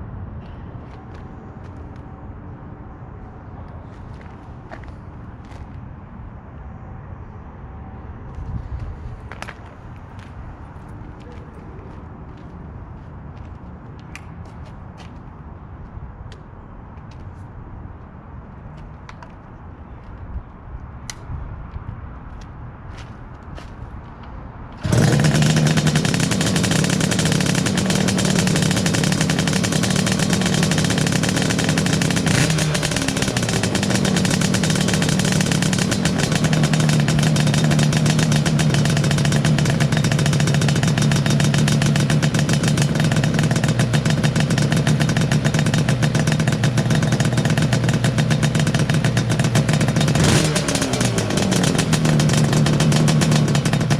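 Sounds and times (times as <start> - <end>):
two-stroke motorcycle engine running: 24.8 - 53.9.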